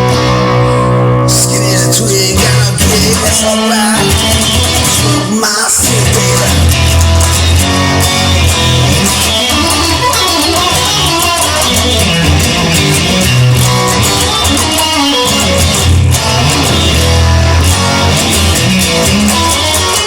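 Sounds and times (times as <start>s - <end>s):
lead guitar: 0.0s - 20.0s
steady bass line: 0.0s - 20.0s.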